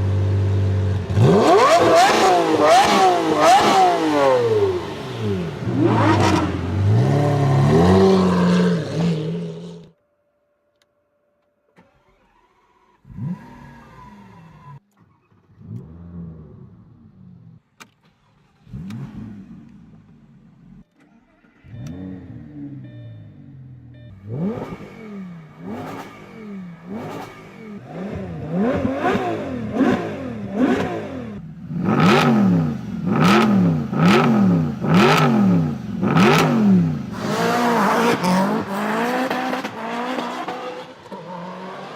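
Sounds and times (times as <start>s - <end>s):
car engine revving: 0.0s - 9.9s, 11.8s - 41.9s
engine throttle blips: 17.2s - 40.9s.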